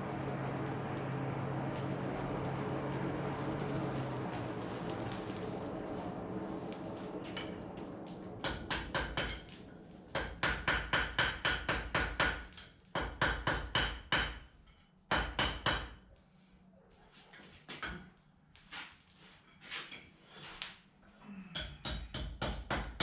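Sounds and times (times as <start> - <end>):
steady noise: 0.0 - 11.0
hammer ringing on anvil: 8.4 - 16.8.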